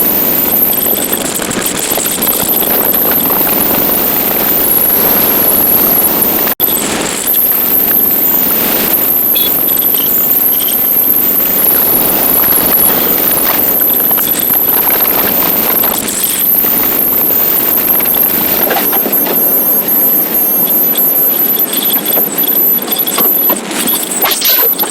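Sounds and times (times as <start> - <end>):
wind and road noise: 0.0 - 24.9.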